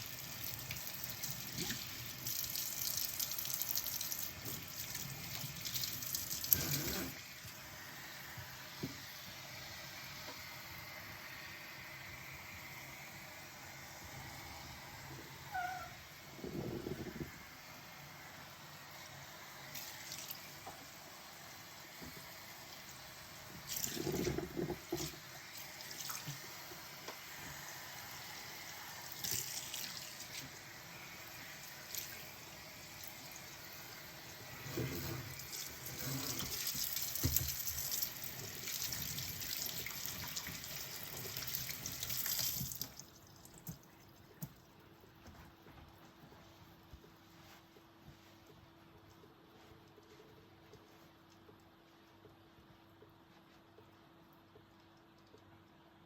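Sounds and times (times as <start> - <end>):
tap running into sink: 36.2 - 37.9.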